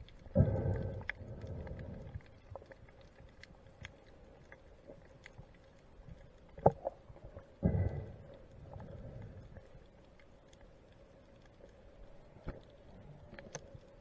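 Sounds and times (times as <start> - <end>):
low bubbly underwater rumble: 0.0 - 3.6, 6.6 - 9.8
faint crackling clicks: 0.0 - 14.0.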